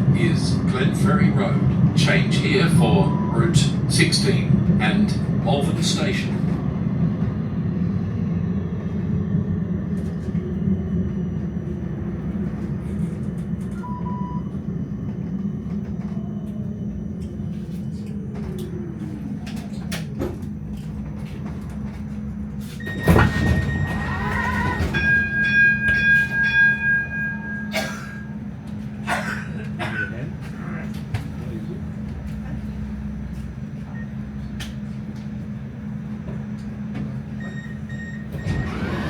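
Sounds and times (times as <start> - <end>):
tram rumbling: 0.0 - 39.0
pulsing door warning beeps: 2.9 - 3.6, 13.8 - 14.6, 22.8 - 28.4, 37.4 - 39.0.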